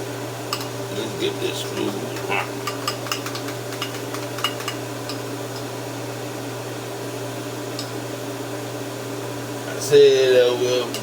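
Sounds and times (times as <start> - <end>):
kitchen appliance humming: 0.0 - 11.0
utensil clicks and taps: 1.6 - 5.7.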